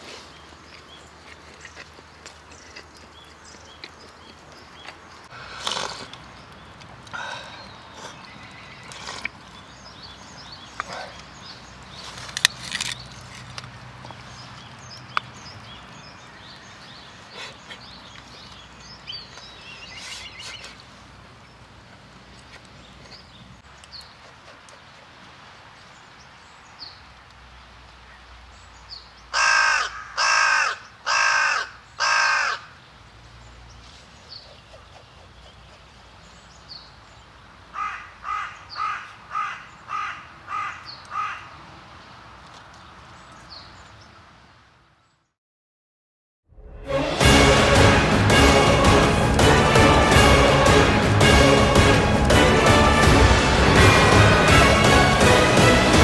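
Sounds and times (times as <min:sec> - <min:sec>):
bird giving harsh calls: 0:29.3 - 0:32.7, 0:37.8 - 0:41.5.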